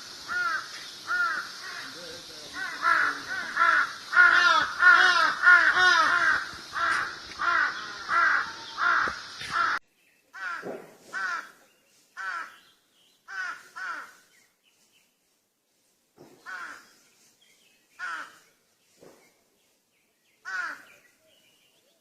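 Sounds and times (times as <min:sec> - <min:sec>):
steady hiss: 0:00.0 - 0:09.8
crows cawing: 0:00.2 - 0:11.6, 0:12.2 - 0:12.6, 0:13.3 - 0:14.3, 0:16.4 - 0:16.9, 0:18.0 - 0:18.4, 0:20.4 - 0:21.0.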